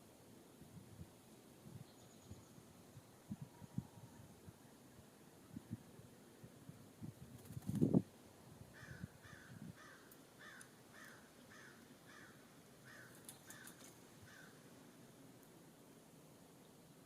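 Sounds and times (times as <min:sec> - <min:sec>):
bird calling: 0:08.8 - 0:14.6.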